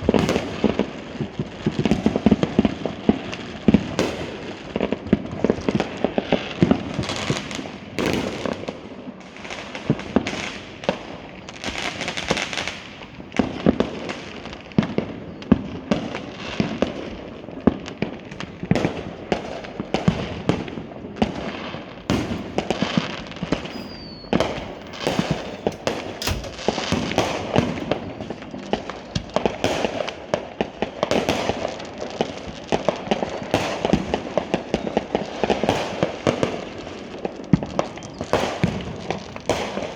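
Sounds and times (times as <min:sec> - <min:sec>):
fireworks bangs and pops: 0:00.0 - 0:39.9
falling firework whistle: 0:22.1 - 0:30.0.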